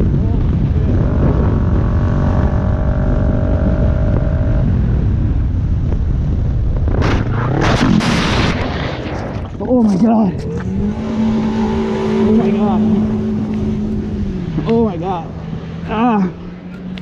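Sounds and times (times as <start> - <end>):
motorcycle engine: 0.0 - 5.4, 10.3 - 17.0
road rumble: 0.0 - 17.0
steady tone: 10.3 - 17.0.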